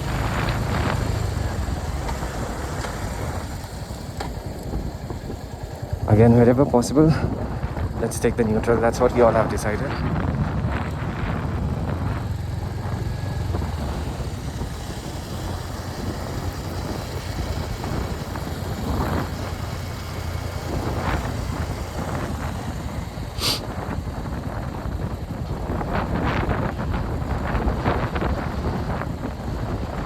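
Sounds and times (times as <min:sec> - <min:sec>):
motorcycle engine ticking over: 0:00.0 - 0:30.0
tyre and wind noise: 0:00.0 - 0:30.0
brief high hiss: 0:23.4 - 0:23.7.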